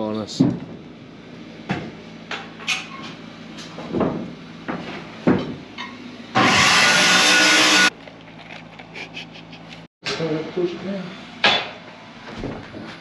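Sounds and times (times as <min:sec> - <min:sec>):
hammer knocks on wood framing: 0:03.8 - 0:05.6.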